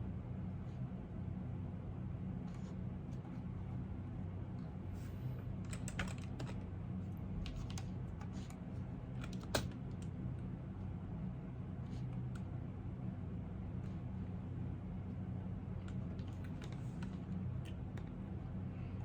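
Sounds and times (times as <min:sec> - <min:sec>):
steady low hum: 0:00.0 - 0:19.0
typing on computer keyboard: 0:05.7 - 0:06.6.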